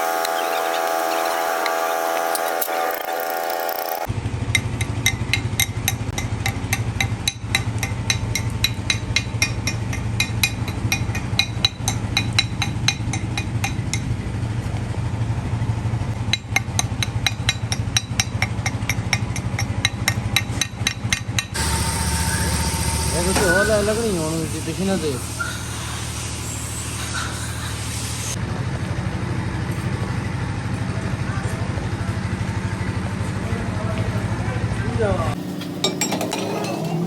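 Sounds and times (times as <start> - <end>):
low machine hum: 0.0 - 37.0
hammer striking steel: 1.2 - 14.2, 16.2 - 24.2, 35.6 - 37.0.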